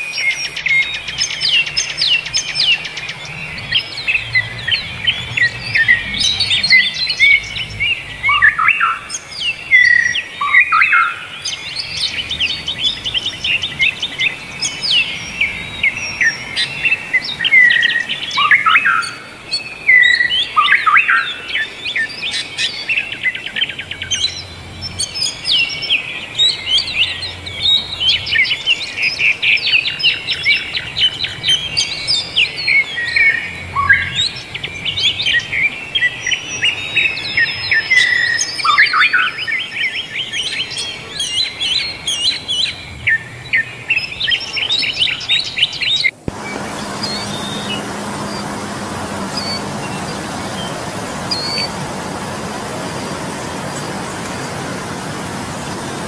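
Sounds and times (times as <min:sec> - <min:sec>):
birds singing in chorus: 0:00.0 - 0:56.0.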